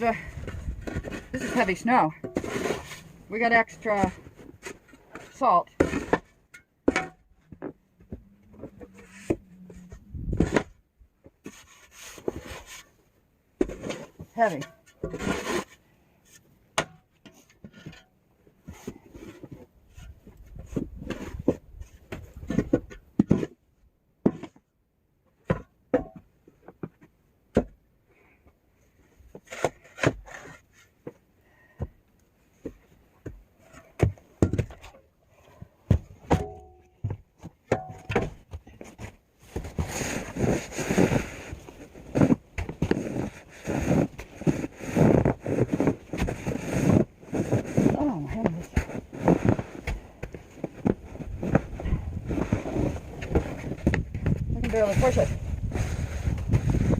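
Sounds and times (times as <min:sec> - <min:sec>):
snow shovel scraping: 0:00.8 - 0:06.3, 0:13.7 - 0:15.8, 0:39.5 - 0:53.9, 0:54.7 - 0:56.9.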